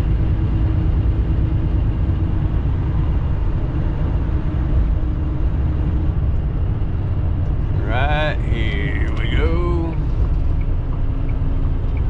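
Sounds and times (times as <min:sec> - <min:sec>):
road noise: 0:00.0 - 0:12.0
truck engine rumble: 0:00.0 - 0:12.0
faint steady hum: 0:07.6 - 0:10.3.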